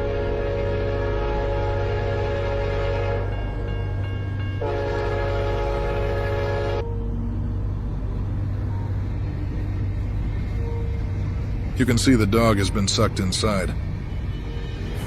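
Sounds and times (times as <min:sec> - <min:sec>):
train horn blast: 0:00.0 - 0:03.4, 0:04.6 - 0:07.0
low rumble of moving train: 0:00.0 - 0:15.0.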